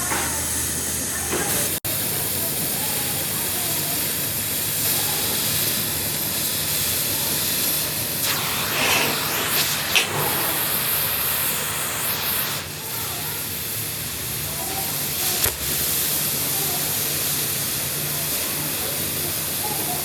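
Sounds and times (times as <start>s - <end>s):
loud steady hiss: 0.0s - 20.0s.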